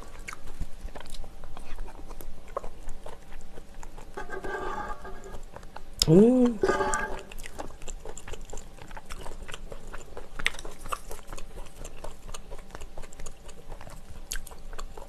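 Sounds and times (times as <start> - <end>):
chewing pasta: 0.0 - 6.1, 6.8 - 15.0.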